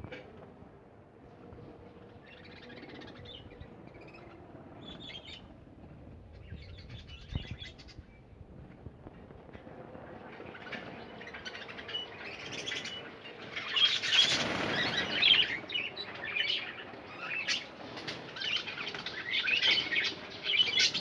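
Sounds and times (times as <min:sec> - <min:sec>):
budgerigars chattering: 0:10.5 - 0:21.0.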